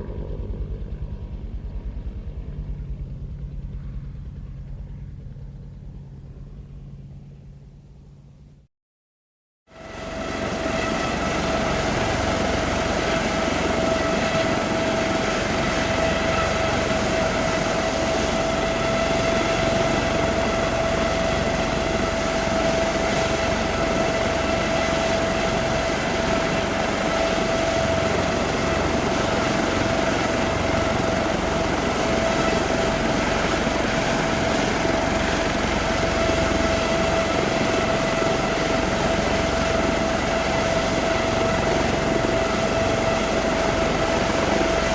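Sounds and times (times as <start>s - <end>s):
helicopter turbine whine: 0.0s - 8.7s, 9.7s - 44.9s.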